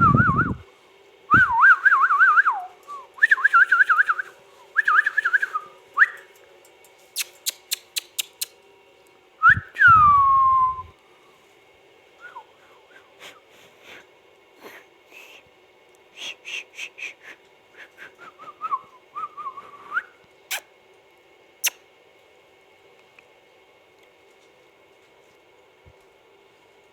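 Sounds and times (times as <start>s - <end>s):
parrot whistling: 1.3s - 6.2s
parrot chirps and clicks: 7.2s - 8.6s.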